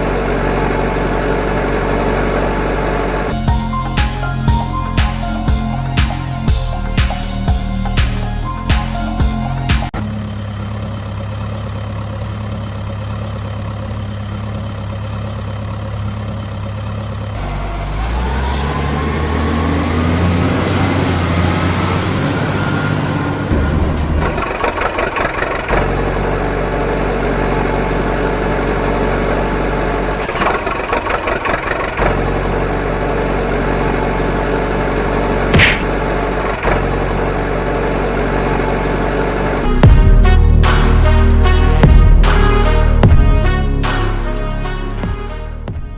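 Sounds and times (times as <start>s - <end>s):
rising engine whine: 0.0s - 30.2s
vehicle engines running: 0.0s - 45.9s.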